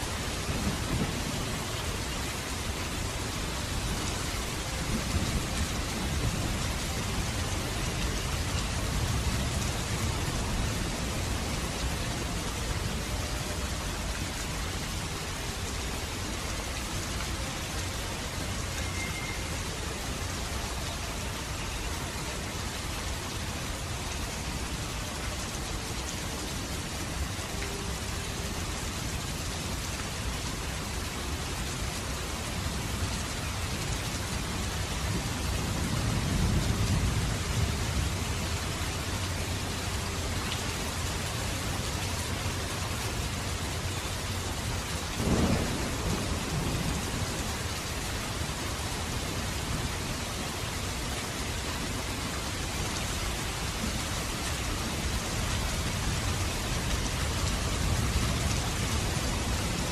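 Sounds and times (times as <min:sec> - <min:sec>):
steady rain falling: 0:00.0 - 0:59.9
low roll of thunder: 0:45.2 - 0:47.7.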